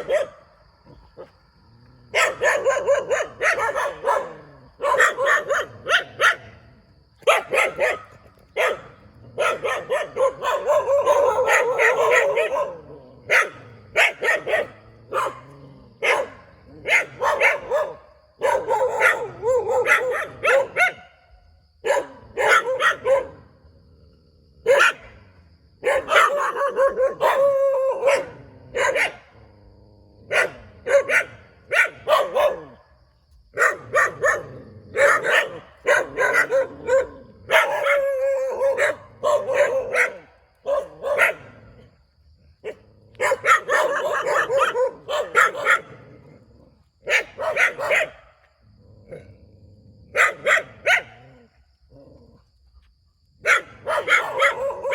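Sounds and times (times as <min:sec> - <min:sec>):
dog barking: 0:00.0 - 0:00.6, 0:02.1 - 0:06.6, 0:07.2 - 0:21.2, 0:21.8 - 0:23.5, 0:24.6 - 0:25.2, 0:25.8 - 0:29.4, 0:30.2 - 0:32.9, 0:33.5 - 0:41.7, 0:42.6 - 0:46.0, 0:47.0 - 0:48.4, 0:50.1 - 0:51.5, 0:53.4 - 0:54.9.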